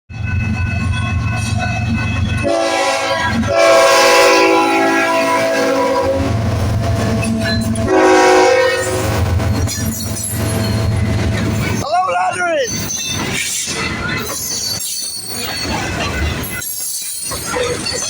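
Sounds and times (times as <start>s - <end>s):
locomotive chord horn blasts: 2.4s - 9.8s.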